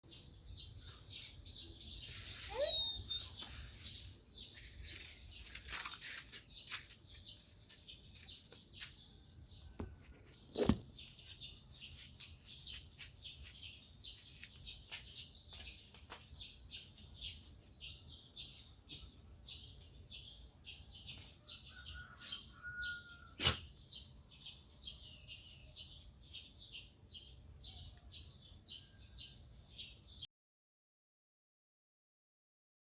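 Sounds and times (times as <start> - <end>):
birds chirping: 0.1 - 17.5
insect trill: 0.1 - 30.2.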